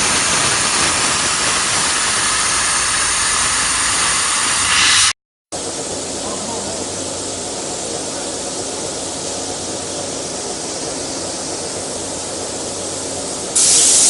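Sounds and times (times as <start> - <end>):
plasma cutting machine hissing: 0.0 - 5.2, 6.6 - 14.0.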